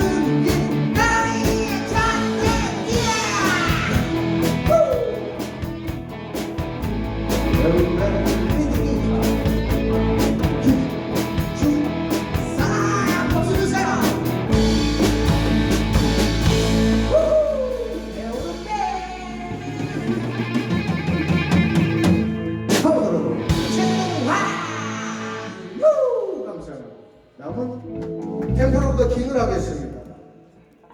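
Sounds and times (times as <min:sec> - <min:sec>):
person singing: 0:00.0 - 0:05.4, 0:07.5 - 0:14.8, 0:22.7 - 0:26.4
bass guitar: 0:00.0 - 0:25.8, 0:27.5 - 0:30.2
drum kit: 0:00.0 - 0:25.8
electric guitars: 0:00.0 - 0:25.8, 0:27.8 - 0:30.9
rock band playing: 0:00.0 - 0:25.8, 0:27.9 - 0:29.6.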